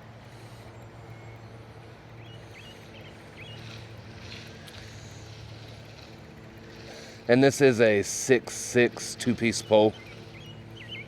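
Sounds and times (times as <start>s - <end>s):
steady low hum: 0.0s - 11.0s
bird chirps: 1.0s - 4.4s, 9.5s - 11.0s.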